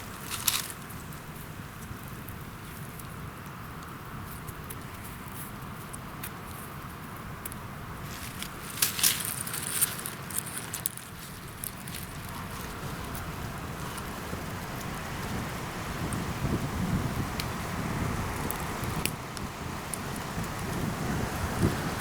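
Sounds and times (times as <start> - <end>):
sharp crackling snaps: 7.4 - 15.4
wind buffeting microphone: 12.0 - 22.0.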